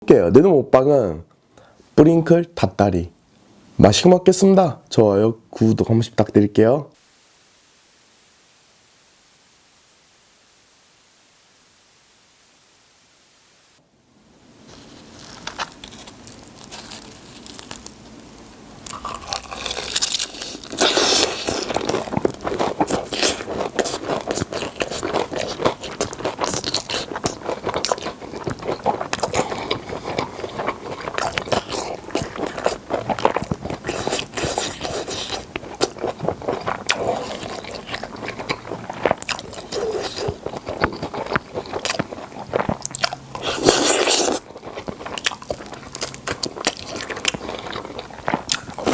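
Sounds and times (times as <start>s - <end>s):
crunching fried chicken: 14.6s - 48.9s.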